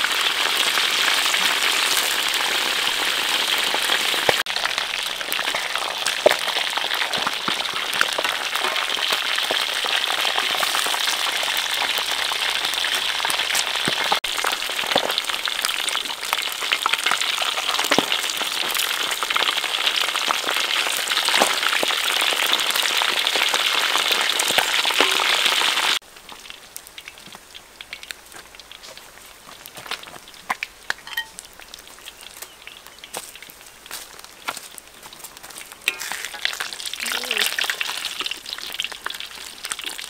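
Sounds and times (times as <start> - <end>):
food sizzling in hot oil: 0.0 - 34.9, 35.5 - 40.0
metal spatula stirring: 25.0 - 25.4, 35.8 - 36.9.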